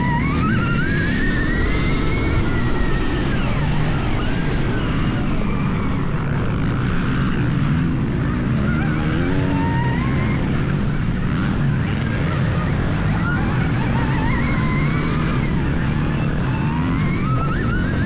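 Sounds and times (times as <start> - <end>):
electric motor whining: 6.8 - 18.0.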